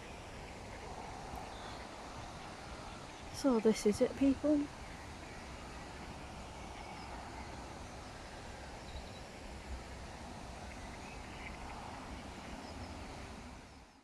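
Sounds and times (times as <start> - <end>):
distant bird chirps: 0.0 - 14.0.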